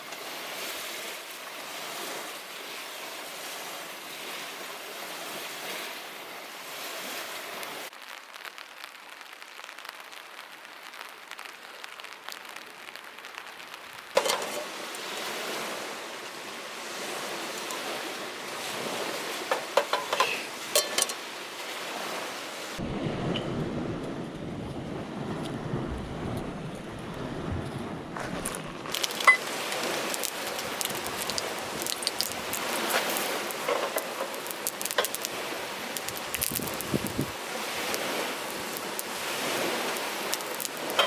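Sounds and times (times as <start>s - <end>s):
steady rain falling: 0.0s - 41.0s
rain drop ticks: 7.9s - 15.3s, 28.9s - 41.0s.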